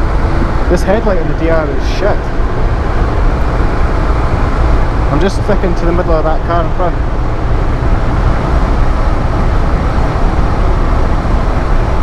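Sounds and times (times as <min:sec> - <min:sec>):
heavy wind: 0:00.0 - 0:12.0
road rumble: 0:00.0 - 0:12.0.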